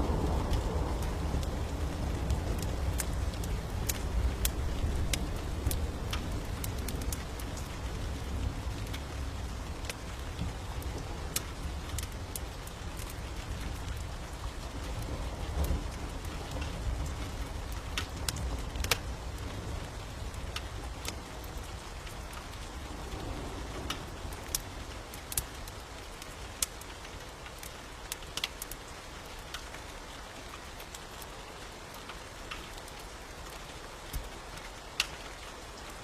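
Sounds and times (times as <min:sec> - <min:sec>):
steady rain hissing: 0:00.0 - 0:36.0
wood fire crackling: 0:00.0 - 0:36.0.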